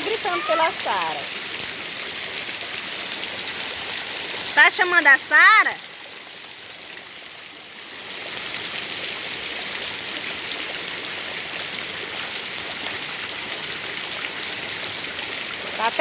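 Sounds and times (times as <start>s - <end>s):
heavy rain pouring on street: 0.0s - 5.8s, 11.1s - 16.0s.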